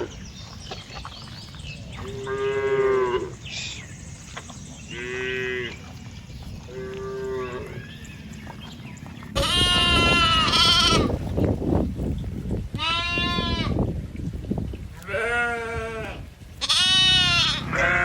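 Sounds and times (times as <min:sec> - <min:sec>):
goats bleating: 0:09.4 - 0:11.1, 0:12.8 - 0:13.8, 0:15.0 - 0:18.0.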